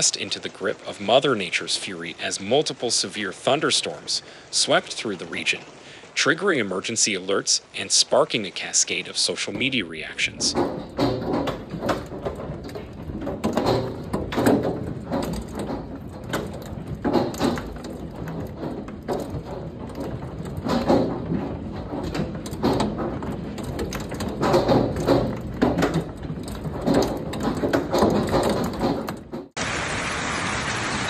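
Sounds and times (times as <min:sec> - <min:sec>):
hailstones striking hard surfaces: 0:09.3 - 0:29.6.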